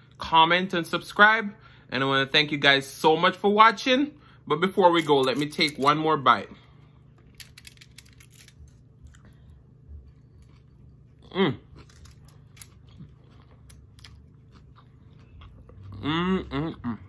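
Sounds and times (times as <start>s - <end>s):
man chewing with mouth clicks: 9.0s - 17.0s.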